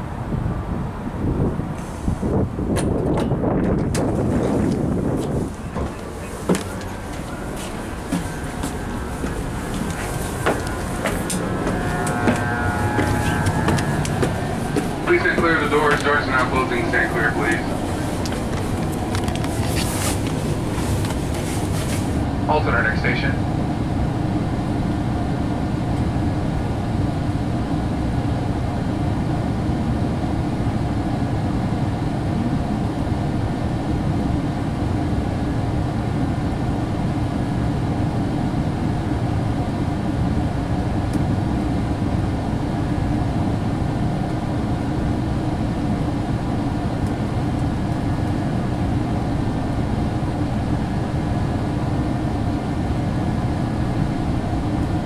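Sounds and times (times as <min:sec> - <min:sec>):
train cabin rumble: 0:00.0 - 0:29.2, 0:32.1 - 0:55.0.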